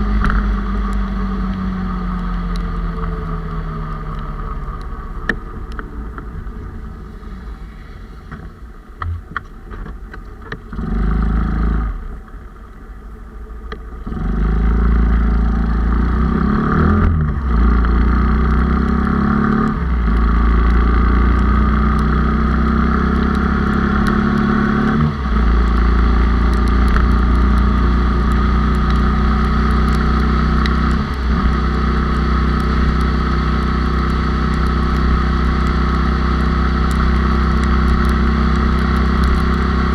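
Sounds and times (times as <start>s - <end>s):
motorcycle engine running: 14.1s - 39.9s.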